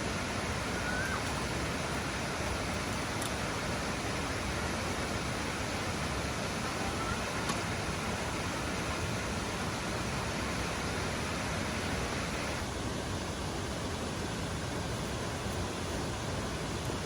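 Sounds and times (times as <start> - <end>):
waterfall rushing: 0.0 - 14.8.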